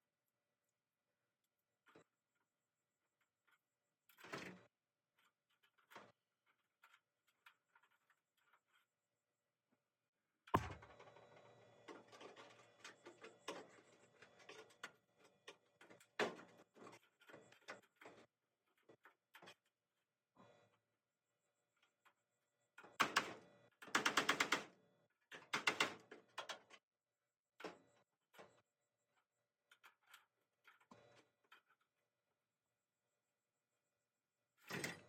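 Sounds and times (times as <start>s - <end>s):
sharp knock: 10.6s - 10.9s.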